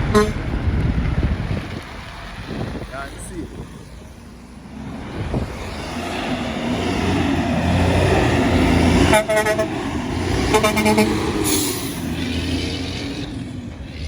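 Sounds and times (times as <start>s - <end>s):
truck horn blasts: 0.0s - 0.5s, 7.9s - 12.1s
truck engine rumbling: 0.0s - 14.0s.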